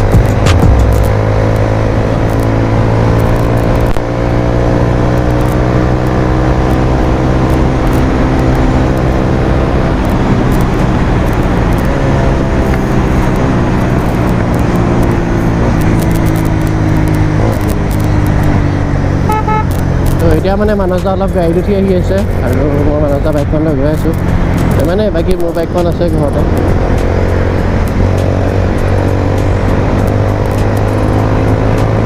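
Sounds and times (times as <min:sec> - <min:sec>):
wind noise: 0:00.0 - 0:20.4, 0:21.5 - 0:32.0
motorcycle engine running: 0:00.0 - 0:32.0
road noise: 0:00.0 - 0:32.0.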